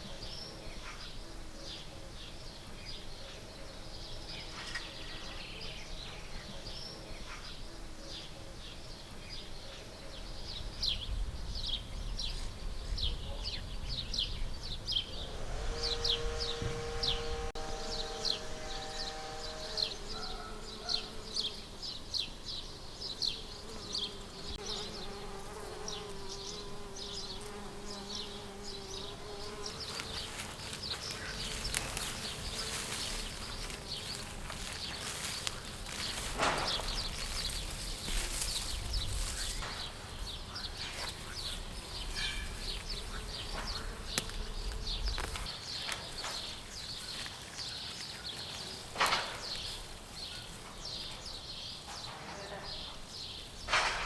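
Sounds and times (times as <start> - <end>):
flying insect buzzing: 14.9 - 22.1, 22.8 - 45.5.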